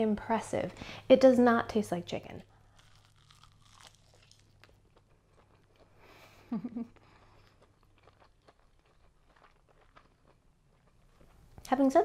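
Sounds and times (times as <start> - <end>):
person chewing softly: 2.4 - 11.8.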